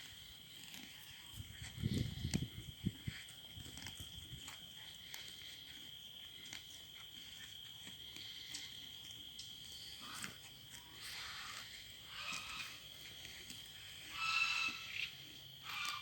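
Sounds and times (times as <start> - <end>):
insect trilling: 6.4 - 16.0.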